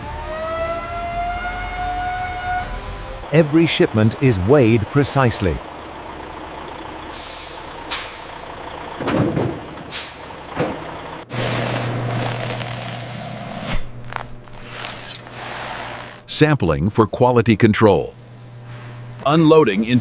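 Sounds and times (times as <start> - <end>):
low engine hum: 0.0 - 14.7
truck air brakes hissing: 7.0 - 8.6, 9.8 - 10.5.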